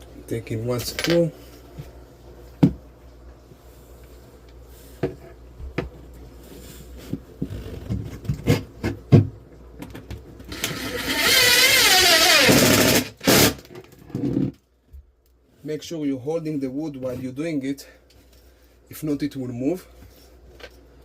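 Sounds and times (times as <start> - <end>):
power drill driving a screw: 10.5 - 13.6.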